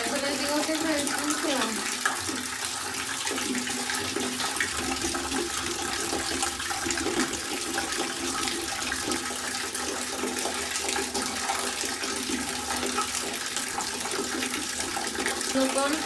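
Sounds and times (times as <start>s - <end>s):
water running and splashing: 0.0s - 16.0s.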